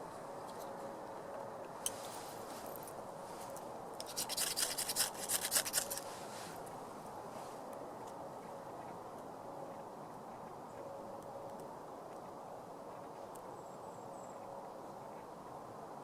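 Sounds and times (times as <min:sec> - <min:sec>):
sharp scraping strokes: 0:04.0 - 0:06.7.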